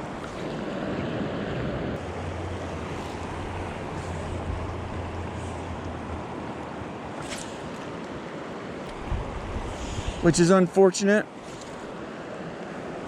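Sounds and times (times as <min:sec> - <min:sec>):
wind rumble on microphone: 0:00.0 - 0:07.3, 0:08.8 - 0:10.4
creek water rushing: 0:00.0 - 0:13.0.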